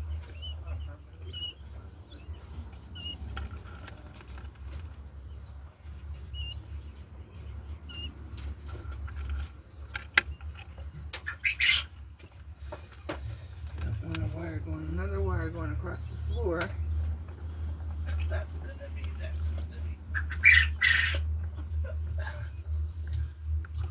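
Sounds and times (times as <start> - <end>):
quail peeping: 0.0 - 17.8, 19.3 - 21.6
sharp clicks and knocks: 8.0 - 11.3.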